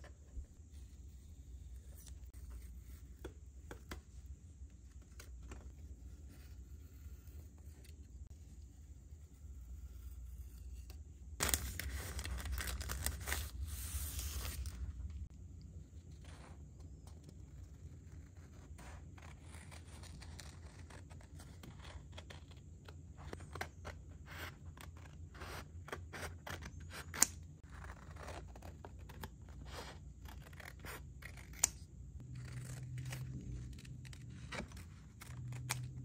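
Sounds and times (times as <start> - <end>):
scissors snipping: 31.2 - 34.2.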